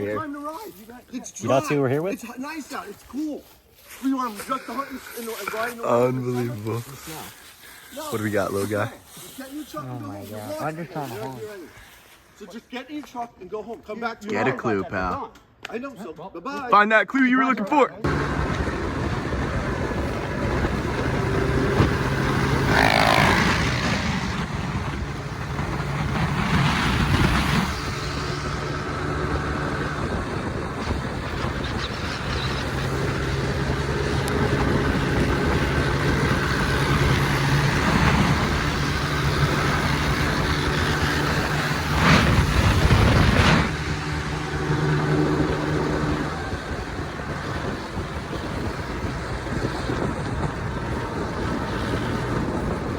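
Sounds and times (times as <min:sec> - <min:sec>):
motor vehicle engine running: 0:18.1 - 0:52.9.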